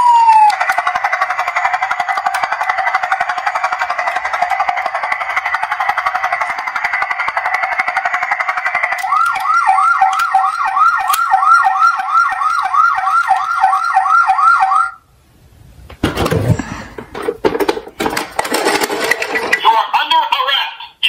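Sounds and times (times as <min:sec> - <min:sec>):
toy electronic siren: 0:00.0 - 0:15.0
clatter of knocks: 0:16.0 - 0:19.6.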